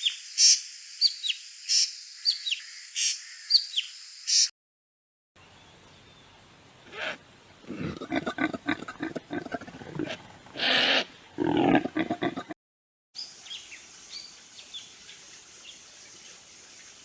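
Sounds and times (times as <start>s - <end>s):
small birds chirping faintly: 0.0s - 4.5s, 13.2s - 17.0s
animal harsh calls: 6.9s - 12.6s.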